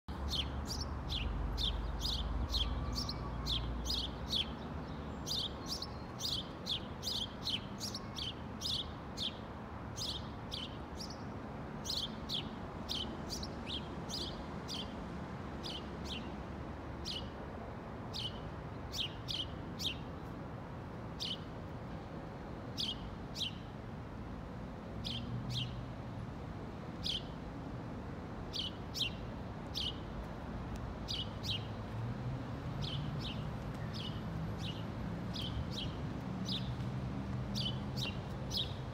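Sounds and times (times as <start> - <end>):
songbird high chirps: 0.1 - 9.4, 10.0 - 15.0, 18.1 - 20.4, 22.7 - 23.7, 25.0 - 25.8, 27.0 - 27.4, 28.5 - 30.1, 31.1 - 31.8, 32.8 - 36.8, 37.5 - 38.8.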